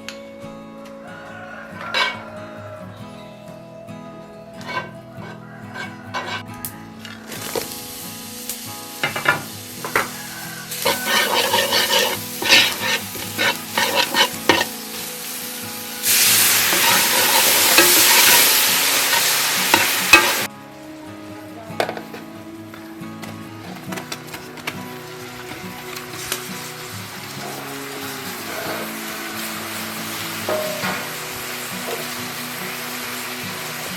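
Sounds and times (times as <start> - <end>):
utensil scraping a pan: 1.8 - 2.2, 4.6 - 6.5, 9.0 - 15.1, 16.0 - 20.5
loud steady sizzle: 3.9 - 33.9
food frying in oil: 7.2 - 20.5, 25.0 - 33.9.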